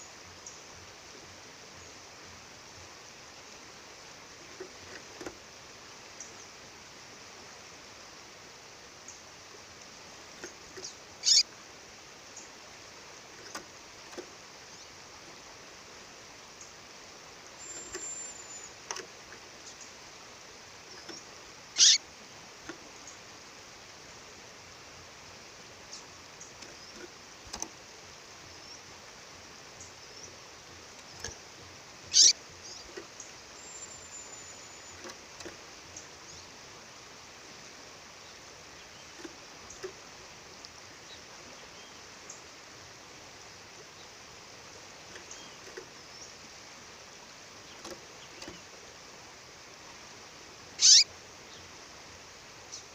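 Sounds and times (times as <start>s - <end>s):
bird sharp high calls: 10.8s - 11.5s, 21.8s - 22.0s, 32.1s - 32.9s, 50.8s - 51.1s
faint high peeps: 11.2s - 11.5s, 17.6s - 18.8s, 21.8s - 22.0s, 32.1s - 32.8s, 33.6s - 35.0s, 50.8s - 51.1s.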